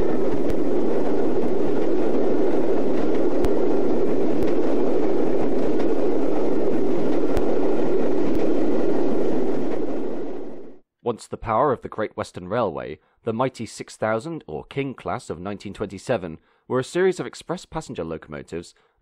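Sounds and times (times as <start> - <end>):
train running on track: 0.0 - 10.7.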